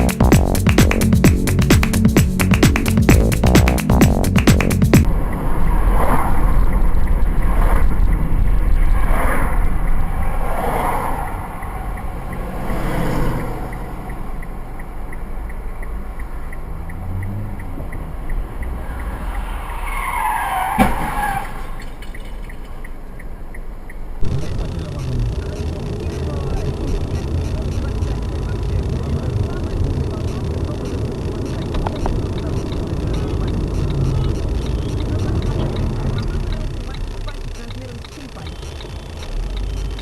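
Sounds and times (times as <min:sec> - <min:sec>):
road noise: 0:00.0 - 0:40.0
tyre squeals: 0:19.2 - 0:21.9.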